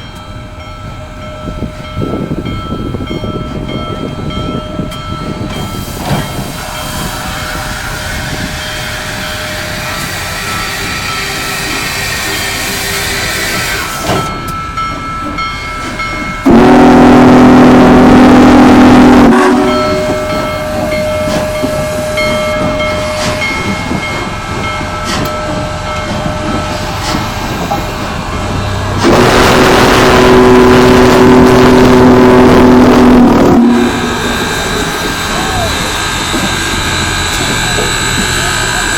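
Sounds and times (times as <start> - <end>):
train running noise: 0.0 - 38.9
steam whistle blasts: 16.4 - 22.3, 29.0 - 36.1.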